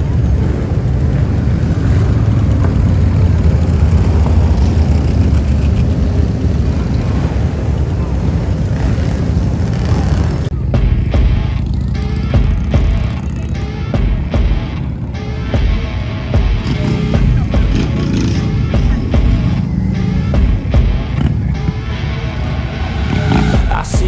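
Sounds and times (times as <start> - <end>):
motorcycle engines rumbling: 0.0 - 24.0
voices: 23.1 - 24.0.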